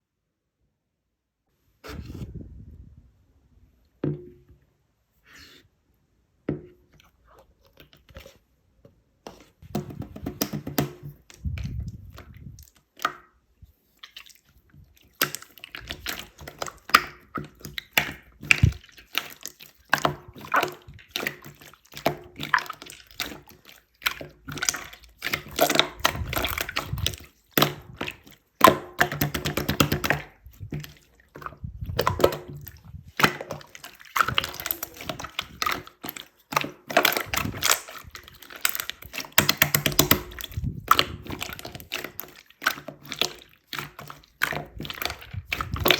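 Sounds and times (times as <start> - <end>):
slime squished by hand: 14.0 - 45.9.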